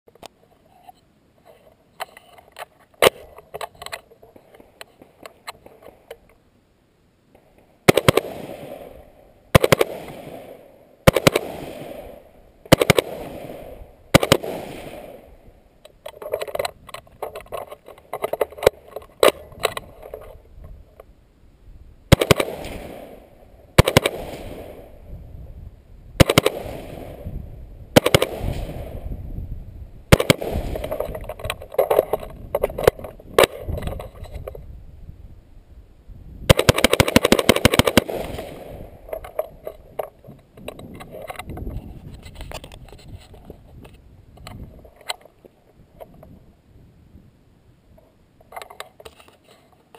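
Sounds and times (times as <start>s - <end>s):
quieter pops: 7.3s - 21.1s, 22.1s - 25.4s, 26.1s - 29.5s, 30.1s - 34.7s, 36.4s - 41.8s
rifle shots echoing: 7.8s - 15.4s, 22.1s - 25.0s, 26.2s - 29.2s, 30.1s - 33.7s, 36.5s - 39.2s.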